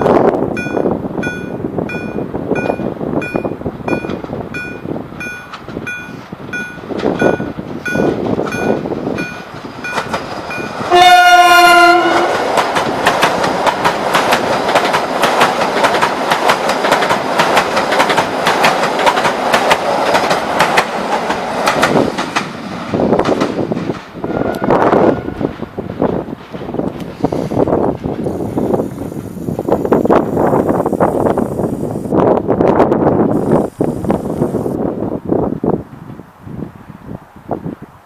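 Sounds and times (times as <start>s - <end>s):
level crossing warning bell: 0.0s - 11.3s
train wheels clacking on rails: 0.0s - 29.4s
train horn: 10.9s - 12.4s, 24.2s - 25.6s.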